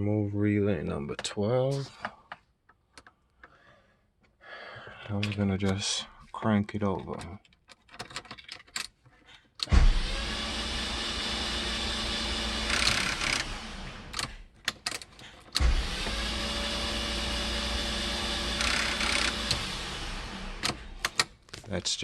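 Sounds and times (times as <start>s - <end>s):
engine cranking on starter: 9.6s - 14.4s, 15.4s - 21.3s.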